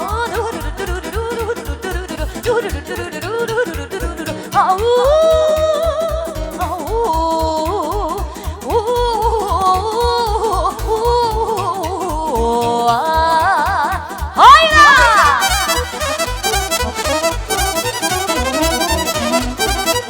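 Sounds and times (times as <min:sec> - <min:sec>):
fast bass beat: 0:00.0 - 0:20.0
lead melody with vibrato: 0:15.0 - 0:20.0.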